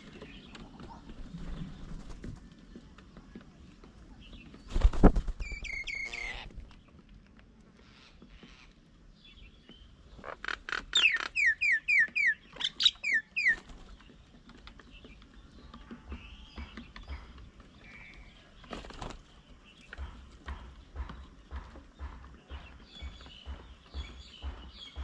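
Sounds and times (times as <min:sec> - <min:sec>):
bird calling: 0:04.7 - 0:06.7, 0:10.2 - 0:13.9.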